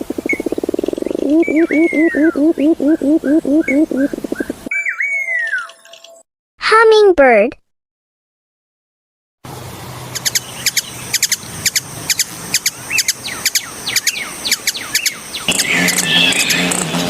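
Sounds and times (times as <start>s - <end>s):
hummingbird chip notes: 0.0s - 4.6s.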